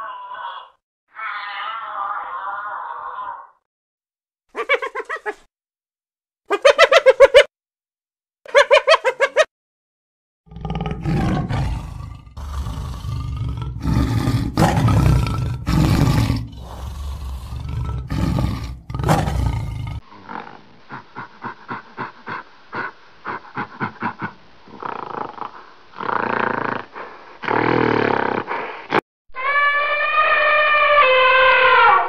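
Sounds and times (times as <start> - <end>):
hyena giggling calls: 4.6 - 5.5, 20.2 - 24.9
tiger growling and roaring: 10.5 - 20.6.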